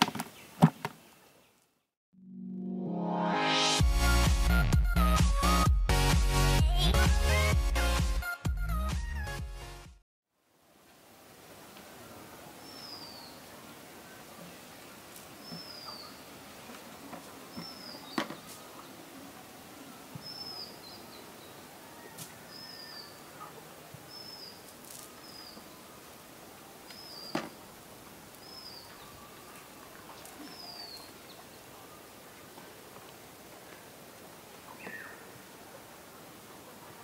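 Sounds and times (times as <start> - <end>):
outdoor background noise: 0.0 - 2.0, 10.3 - 37.0
bird calling with falling notes: 28.4 - 32.0.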